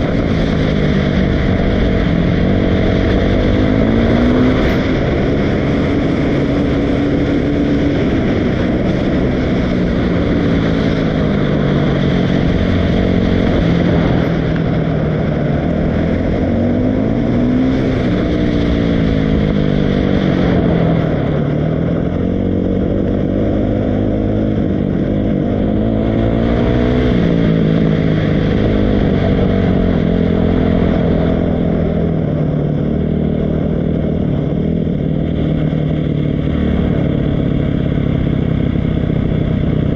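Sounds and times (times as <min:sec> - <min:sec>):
dirt bike engine revving: 0:00.0 - 0:21.4.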